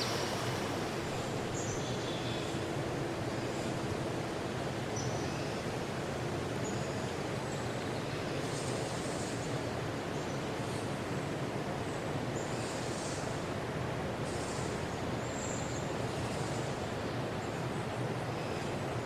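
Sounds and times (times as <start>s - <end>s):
low rushing noise: 0.0s - 4.8s.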